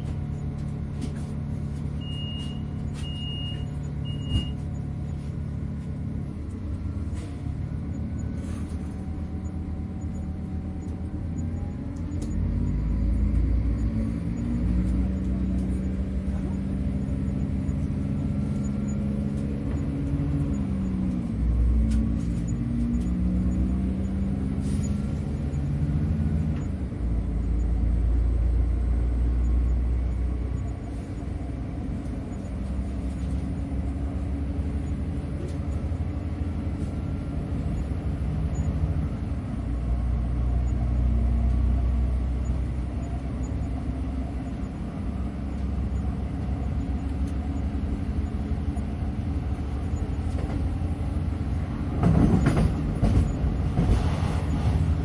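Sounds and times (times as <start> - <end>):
low engine drone: 0.0 - 55.0
train rumbling: 0.0 - 55.0.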